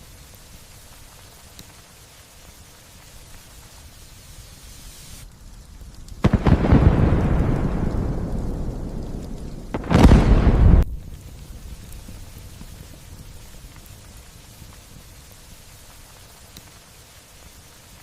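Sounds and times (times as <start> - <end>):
light rain hissing: 0.0 - 18.0
thunderclap with deep rumble: 5.5 - 15.1.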